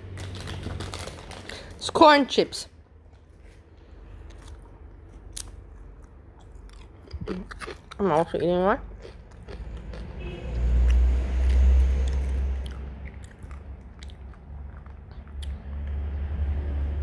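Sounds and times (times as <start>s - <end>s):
chips being crunched and chewed: 0.0s - 1.8s, 4.2s - 10.1s, 10.8s - 16.0s
heavy low rumble: 8.7s - 17.0s.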